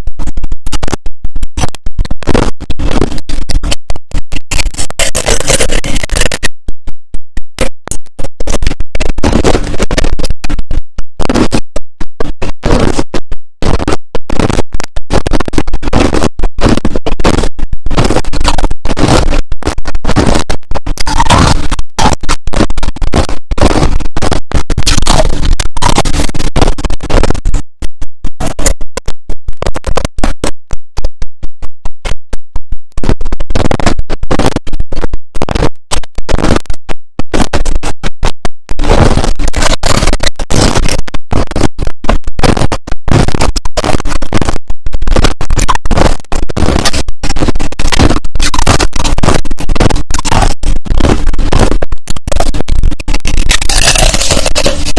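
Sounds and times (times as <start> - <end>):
crushed ice being chewed: 53.6 - 54.9.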